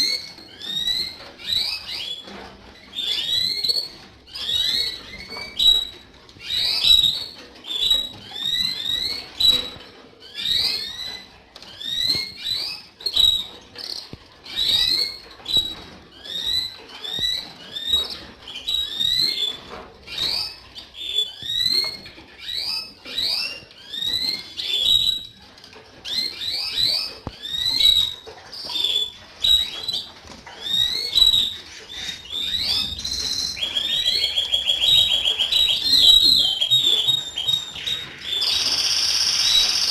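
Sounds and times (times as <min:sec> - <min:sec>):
canaries chirping: 0:00.0 - 0:39.9
fast bird trill: 0:02.9 - 0:39.9.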